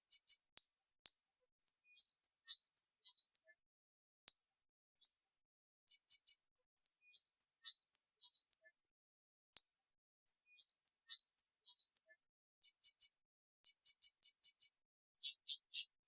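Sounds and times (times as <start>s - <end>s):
bird singing: 0.1s - 3.6s, 4.3s - 5.3s, 5.9s - 8.7s, 9.6s - 12.1s.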